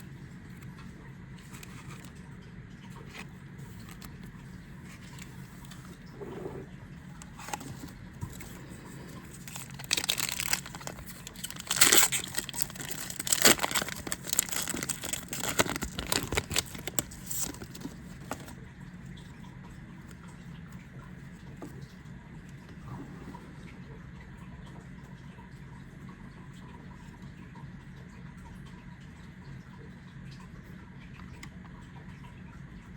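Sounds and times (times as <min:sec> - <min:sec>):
foil pack tearing and crinkling: 0:09.2 - 0:18.6.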